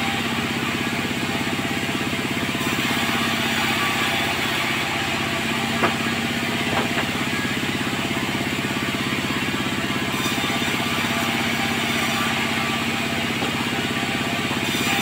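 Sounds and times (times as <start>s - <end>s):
sawmill engine running: 0.0s - 15.0s
sharp knocks: 6.7s - 7.2s.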